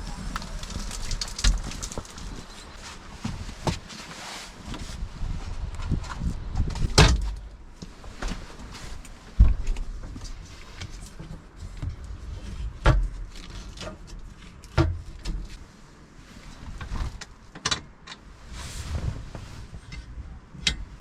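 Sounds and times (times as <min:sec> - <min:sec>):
wind buffeting microphone: 0:00.0 - 0:03.8, 0:04.7 - 0:07.4.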